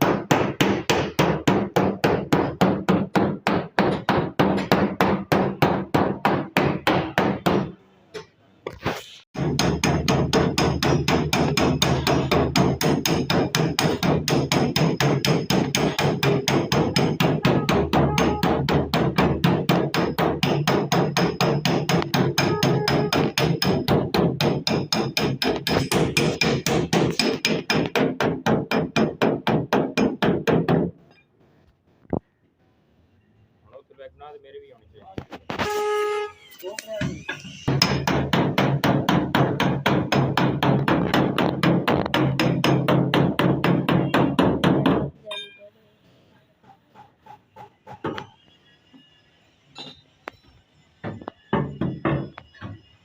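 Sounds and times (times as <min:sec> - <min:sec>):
hammer beating steel panel: 0:00.0 - 0:07.8, 0:09.4 - 0:31.0, 0:37.0 - 0:45.2, 0:51.0 - 0:52.9.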